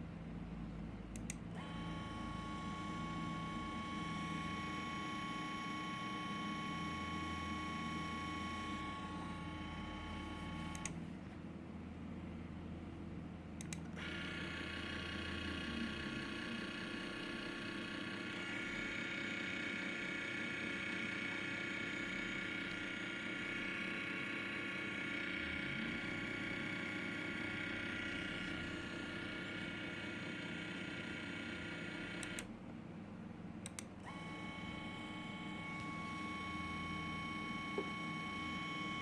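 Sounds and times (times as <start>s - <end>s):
short clicks: 1.1s - 1.7s, 10.7s - 11.0s, 13.6s - 14.0s, 32.2s - 32.5s, 33.6s - 34.3s
quadcopter motors whining: 34.1s - 39.0s.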